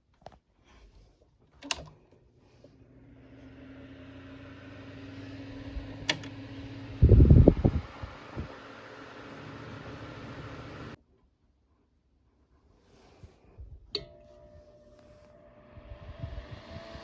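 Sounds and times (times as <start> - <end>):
fan switch click: 1.6 - 2.0, 5.7 - 7.5, 14.0 - 14.3
fan motor hum and air rush: 1.6 - 11.0, 14.0 - 17.0.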